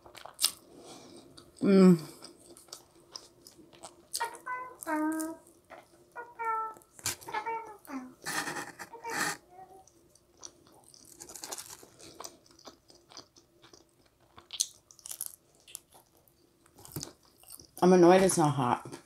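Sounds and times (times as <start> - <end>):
crunching and chewing pizza crust: 0.0 - 4.3, 10.1 - 17.8.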